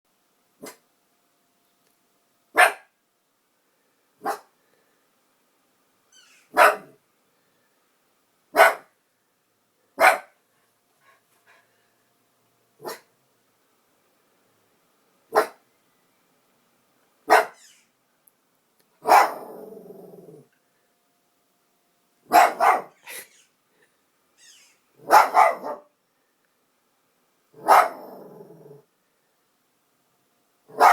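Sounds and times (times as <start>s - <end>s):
dog barking: 0.6s - 0.8s, 2.5s - 3.0s, 4.2s - 4.5s, 6.5s - 7.0s, 8.5s - 8.9s, 10.0s - 10.4s, 12.8s - 13.1s, 15.3s - 15.6s, 17.3s - 17.6s, 19.0s - 19.7s, 22.3s - 23.1s, 25.0s - 25.9s, 27.6s - 28.3s.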